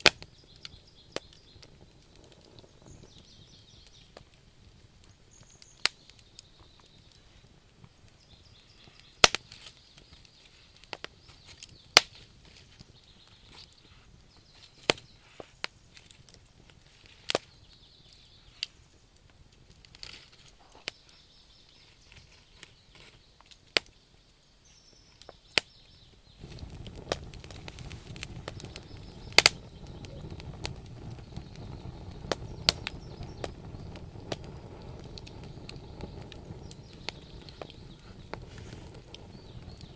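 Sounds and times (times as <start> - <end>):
campfire crackling and popping: 0.0 - 39.9
steady low rushing noise: 26.4 - 39.9.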